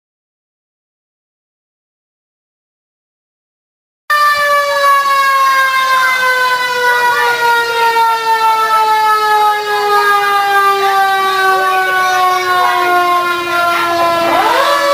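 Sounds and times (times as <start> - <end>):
distant rising and falling siren: 4.1 - 14.9
mechanical siren wailing: 4.1 - 14.9.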